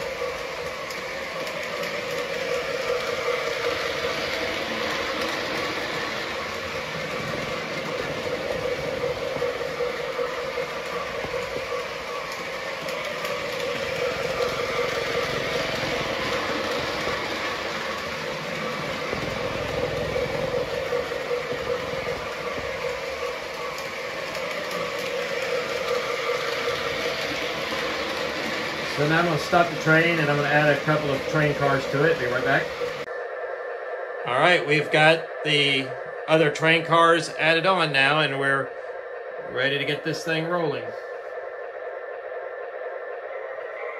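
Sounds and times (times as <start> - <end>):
toy train running on track: 0.0 - 33.1, 34.3 - 38.8, 39.4 - 43.9.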